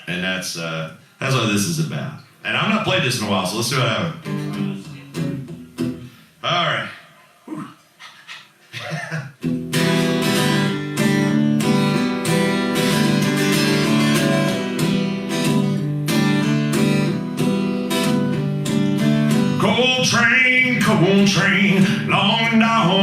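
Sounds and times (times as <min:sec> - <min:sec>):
acoustic guitar strumming chords: 0:04.1 - 0:06.2, 0:09.4 - 0:23.0.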